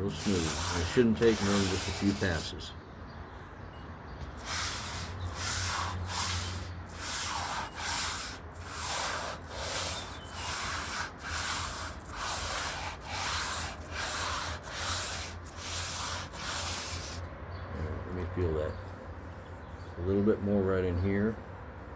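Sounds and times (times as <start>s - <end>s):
hand sanding painted surface: 0.0s - 2.7s, 4.2s - 17.2s.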